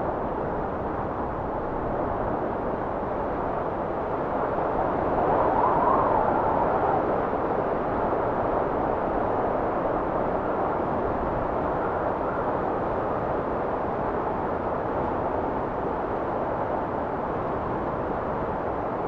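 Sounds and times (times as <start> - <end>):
blizzard wind rushing: 0.0 - 19.0.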